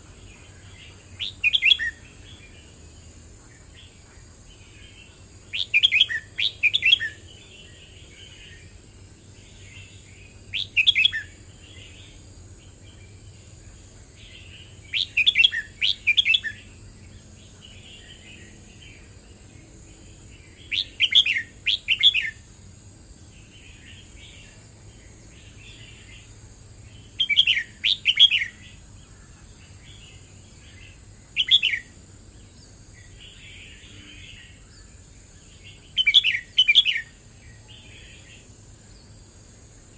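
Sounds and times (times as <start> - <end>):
soft bird chirping: 0.0 - 22.6, 23.2 - 39.9
bird singing quick phrases: 1.2 - 2.1, 5.5 - 7.2, 10.5 - 11.3, 14.9 - 16.6, 27.0 - 28.7, 30.8 - 31.9, 35.6 - 37.1.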